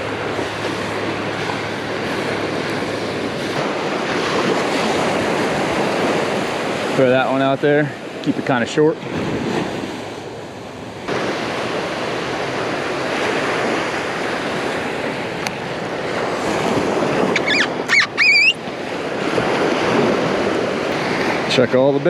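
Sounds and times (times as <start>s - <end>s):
wind on microphone: 0.0s - 7.3s, 7.9s - 21.7s
ocean surf breaking: 0.0s - 22.0s
high-pitched squeaky calls: 17.3s - 18.6s.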